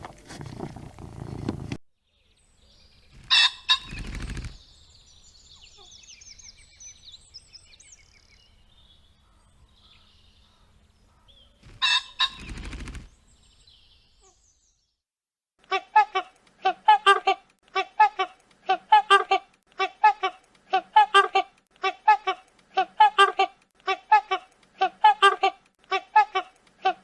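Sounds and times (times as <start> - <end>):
wing flapping: 2.4 - 8.4, 10.5 - 14.3
chicken harsh calls: 3.2 - 4.4, 9.3 - 12.7.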